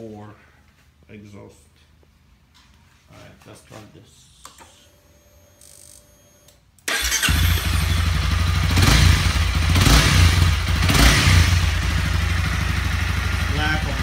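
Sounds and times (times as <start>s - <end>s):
motorcycle engine starting and idling: 6.8s - 14.0s
engine revving blips: 6.9s - 11.8s.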